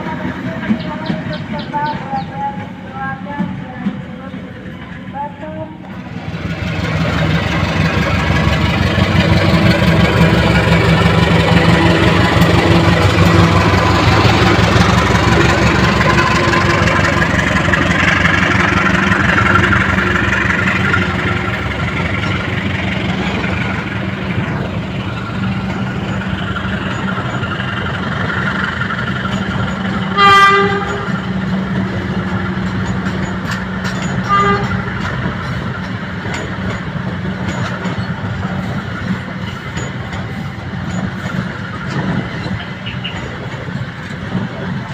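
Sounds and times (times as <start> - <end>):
train rumbling past: 0.0 - 44.9
train horn blast: 30.1 - 31.1, 34.2 - 34.9.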